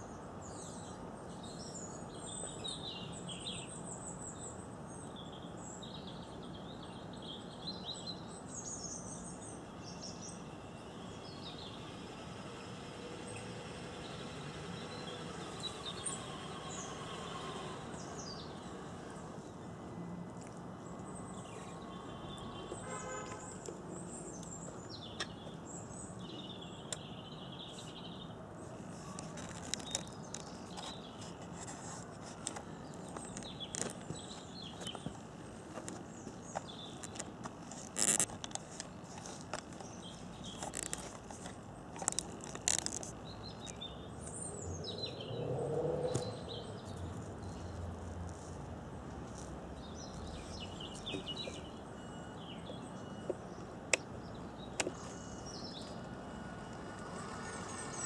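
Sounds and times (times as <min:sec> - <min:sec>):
outdoor background noise: 0:00.0 - 0:58.0
small birds chirping: 0:00.0 - 0:58.0.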